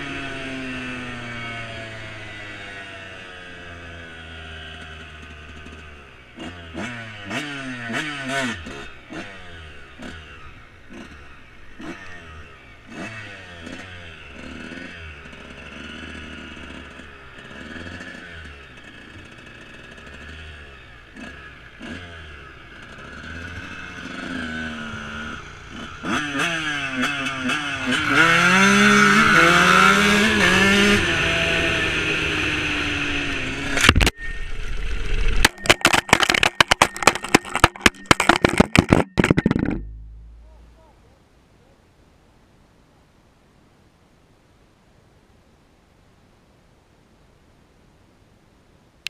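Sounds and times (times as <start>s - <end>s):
dirt bike engine revving: 0.0s - 40.8s
knocks and clatter: 35.4s - 40.4s.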